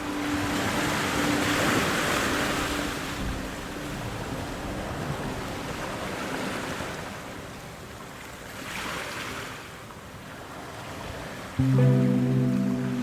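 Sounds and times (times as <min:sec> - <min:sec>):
ocean surf washing: 0:00.0 - 0:07.5, 0:10.8 - 0:13.0.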